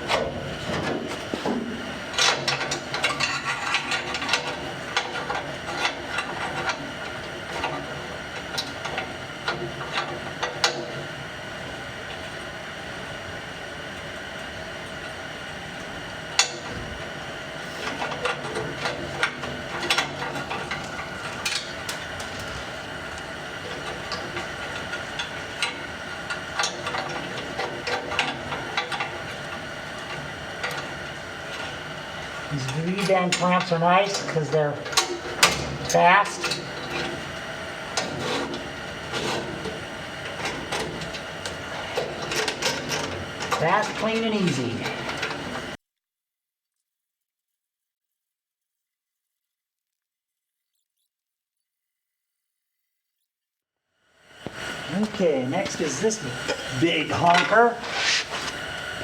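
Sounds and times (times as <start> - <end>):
exhaust pipe and clamps clinking: 0.0 - 11.0, 16.4 - 16.8, 17.8 - 31.9.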